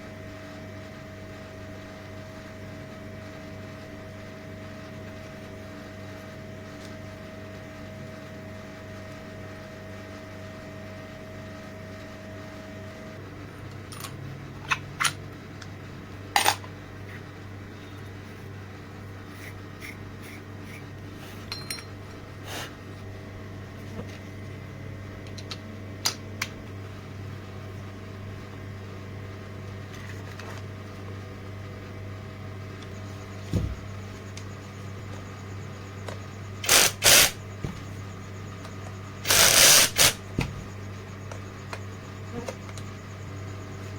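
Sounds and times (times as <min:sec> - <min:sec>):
low electric hum: 0:00.0 - 0:43.9
metal tools clicking and knocking: 0:21.5 - 0:22.0.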